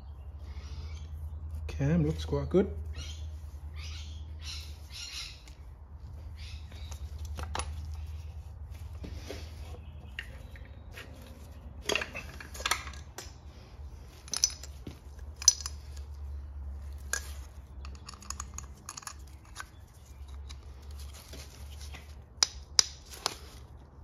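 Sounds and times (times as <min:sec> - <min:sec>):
metal tools clinking: 0:11.8 - 0:13.3, 0:14.1 - 0:16.2, 0:16.9 - 0:20.6.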